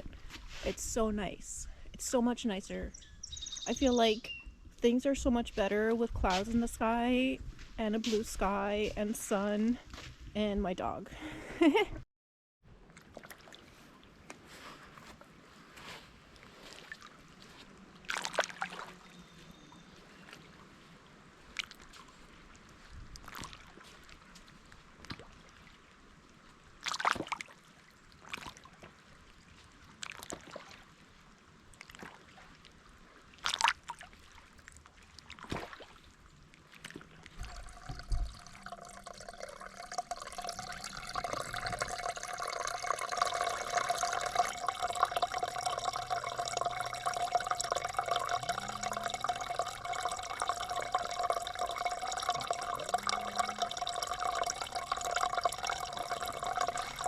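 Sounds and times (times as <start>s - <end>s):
water trickling: 33.5s - 57.0s
water dripping: 36.8s - 57.0s.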